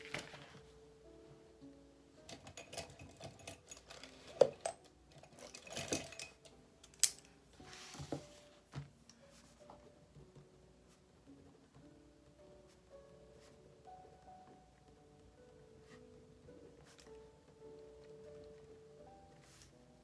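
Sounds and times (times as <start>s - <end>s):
paper rustling: 0.0s - 0.8s, 7.6s - 9.8s
soft instrumental music: 0.0s - 20.0s.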